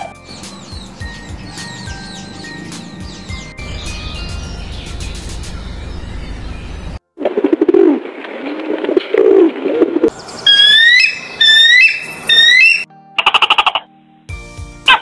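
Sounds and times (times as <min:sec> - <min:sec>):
high whistled bird calls: 0:00.2 - 0:07.0, 0:10.1 - 0:12.9
pigeons cooing: 0:00.4 - 0:04.8.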